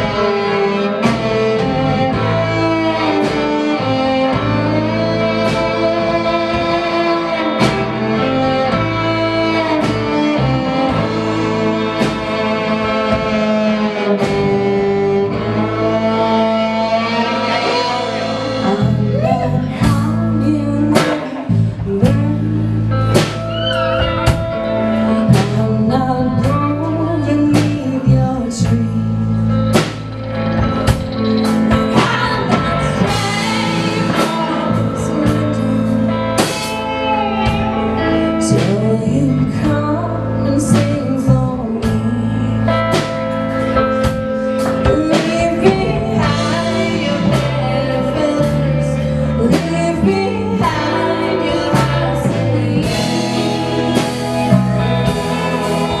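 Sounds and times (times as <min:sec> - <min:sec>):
live rock band playing: 0:00.0 - 0:56.0
sliding melody line: 0:49.4 - 0:56.0.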